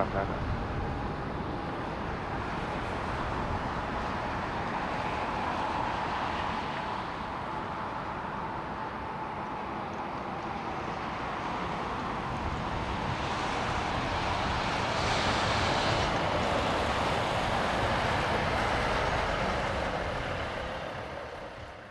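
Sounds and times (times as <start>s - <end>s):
jet airliner engine rush: 10.6s - 21.7s.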